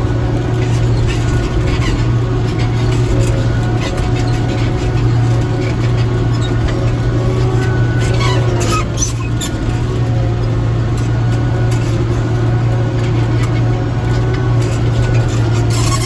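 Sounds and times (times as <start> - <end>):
small tractor engine running: 0.0 - 16.0.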